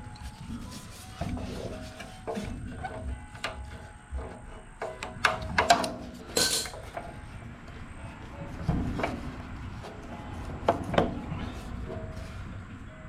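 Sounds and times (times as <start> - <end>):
knocks and clunks of tools: 1.2 - 7.2.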